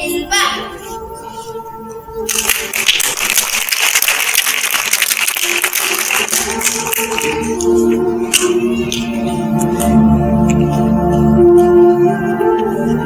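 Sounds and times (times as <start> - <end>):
background music: 0.0 - 13.0
audience clapping: 2.3 - 9.1.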